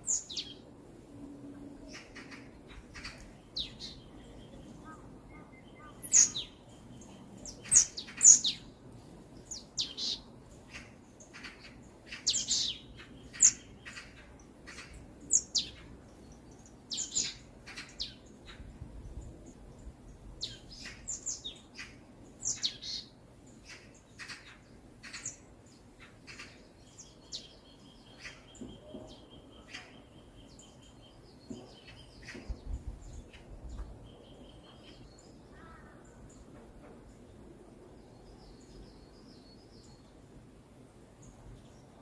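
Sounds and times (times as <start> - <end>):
faint background hiss: 0.0 - 42.0
songbirds chirping: 0.0 - 42.0.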